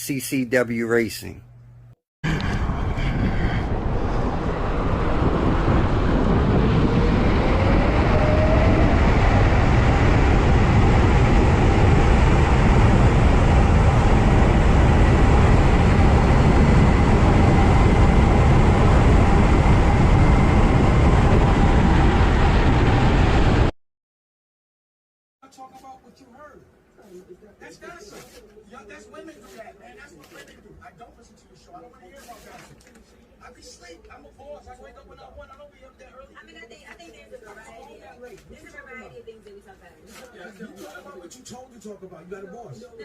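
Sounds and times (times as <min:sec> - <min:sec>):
wind rush on microphone: 0:02.2 - 0:23.7.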